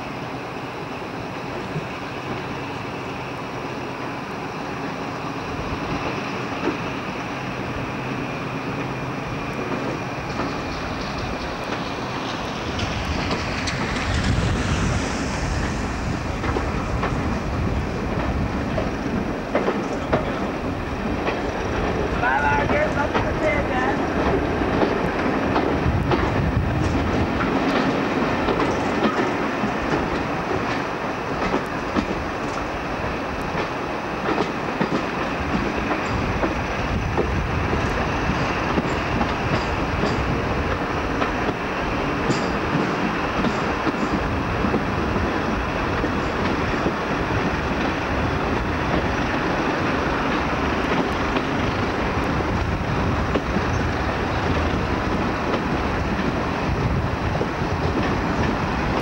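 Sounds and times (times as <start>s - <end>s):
train rumble: 0.0s - 59.0s
wheels clacking over rail joints: 9.6s - 32.8s, 33.4s - 59.0s.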